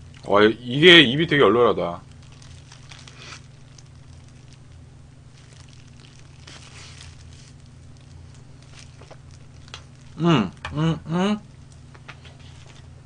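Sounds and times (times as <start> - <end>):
chewing crispy fried chicken: 0.0 - 13.0
steady low hum: 0.0 - 13.0.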